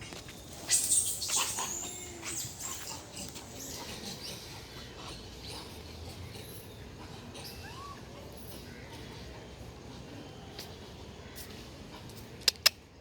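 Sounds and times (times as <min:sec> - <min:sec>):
monkey squeaking and chirping: 0:00.5 - 0:04.4, 0:07.4 - 0:08.0.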